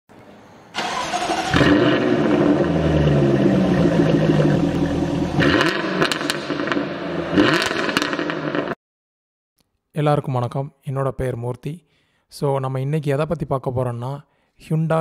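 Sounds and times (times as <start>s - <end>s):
engine cracks: 0.8s - 6.8s
sports car engine revving: 1.0s - 8.8s.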